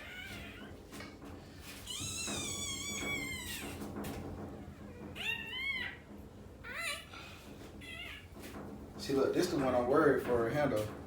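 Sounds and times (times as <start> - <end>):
puppy crying: 0.0 - 0.8, 1.8 - 3.8, 4.8 - 8.4.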